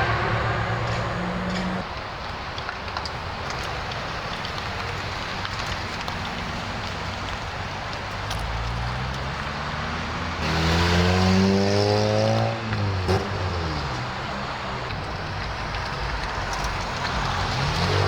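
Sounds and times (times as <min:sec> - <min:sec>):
louder engine revving: 0:00.0 - 0:01.8, 0:10.4 - 0:13.2
car engines running: 0:00.0 - 0:18.0
sharp crack: 0:00.0 - 0:18.0.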